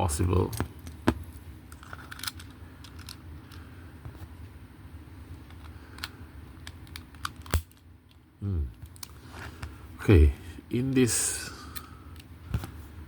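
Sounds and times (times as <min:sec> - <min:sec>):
steady low hum: 0:00.0 - 0:13.0
toy parts clicking: 0:01.8 - 0:03.2.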